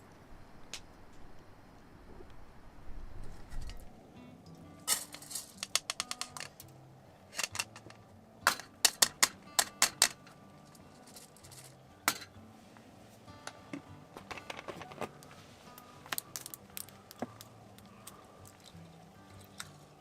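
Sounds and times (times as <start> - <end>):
faint background music: 0.0 - 20.0
sharp clicks and taps: 5.6 - 6.7.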